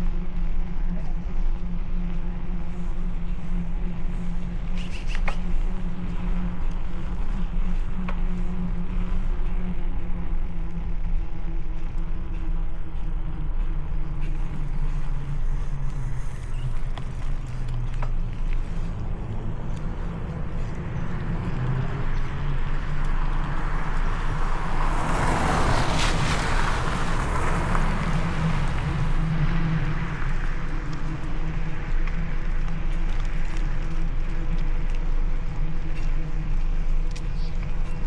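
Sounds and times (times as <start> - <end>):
wind and road noise rumble: 0.0 - 38.0
car passing with tyre hiss: 18.9 - 31.2.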